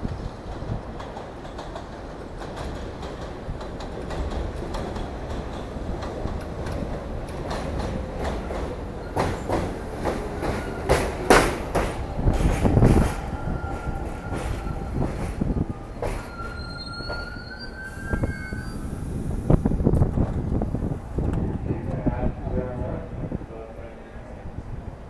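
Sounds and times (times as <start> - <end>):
subway train rumble: 0.0 - 25.0
high wheel squeal: 16.0 - 19.2.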